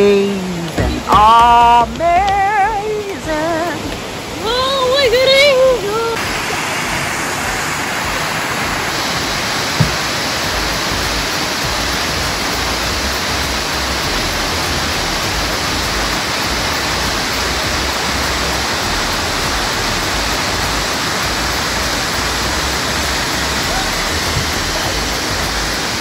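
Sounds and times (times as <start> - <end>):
waterfall rushing: 0.0 - 26.0
low knock: 0.7 - 2.4, 9.7 - 11.8.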